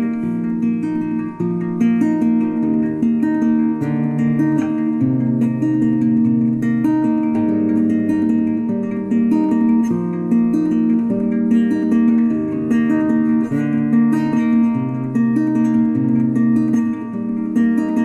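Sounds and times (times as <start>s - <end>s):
acoustic guitar melody: 0.0s - 18.0s.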